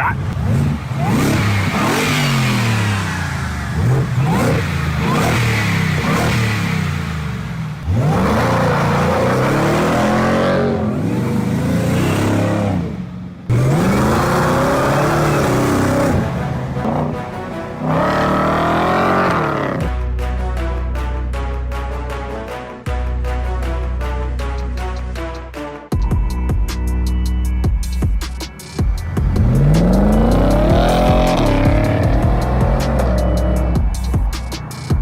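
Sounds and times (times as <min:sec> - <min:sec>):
truck engine revving: 0:00.0 - 0:20.1, 0:26.7 - 0:35.0.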